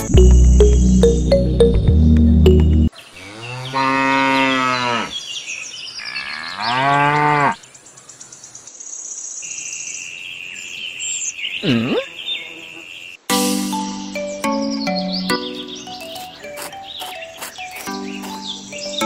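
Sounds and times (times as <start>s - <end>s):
cow mooing: 3.2s - 5.1s.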